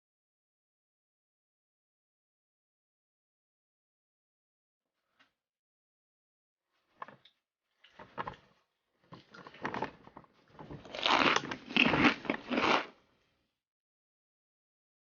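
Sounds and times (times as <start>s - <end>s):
person chewing a cookie: 10.8s - 13.0s.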